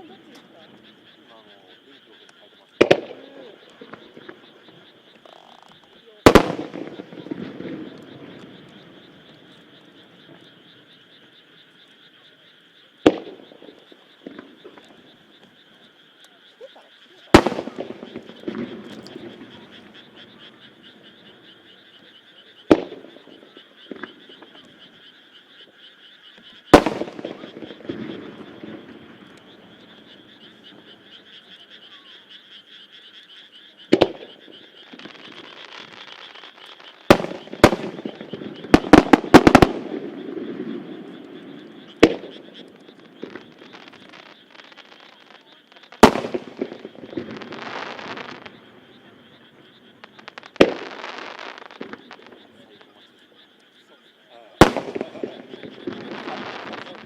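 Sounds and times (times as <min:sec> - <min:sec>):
frogs croaking: 0:00.0 - 0:57.0
firework bangs: 0:02.8 - 0:05.2, 0:06.2 - 0:10.6, 0:13.0 - 0:15.2, 0:17.2 - 0:25.0, 0:26.7 - 0:31.4, 0:33.9 - 0:53.1, 0:54.6 - 0:57.0
firework crackling hiss: 0:17.3 - 0:19.9, 0:34.9 - 0:48.9, 0:50.0 - 0:52.9, 0:54.6 - 0:57.0.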